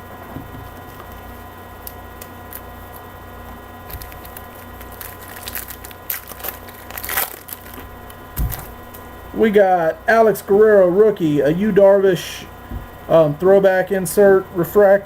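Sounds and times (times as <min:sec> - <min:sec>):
cards being handled: 0:00.8 - 0:03.1, 0:03.9 - 0:09.1
wrapper tearing and crinkling: 0:01.8 - 0:03.0, 0:03.9 - 0:09.0.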